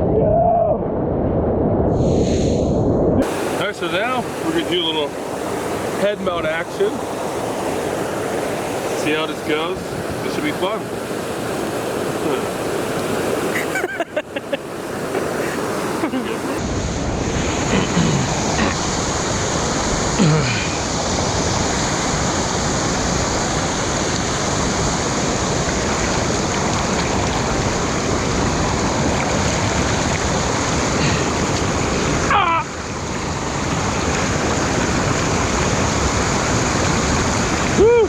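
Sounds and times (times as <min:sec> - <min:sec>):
water gurgle: 0:03.2 - 0:16.6, 0:23.4 - 0:38.0
small waterfall rushing: 0:03.2 - 0:38.0.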